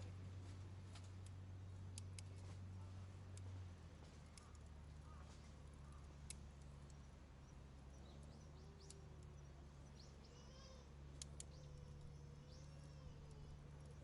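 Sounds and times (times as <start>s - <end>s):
steady low hum: 0.0s - 14.0s
birds chirping and trilling: 6.9s - 14.0s.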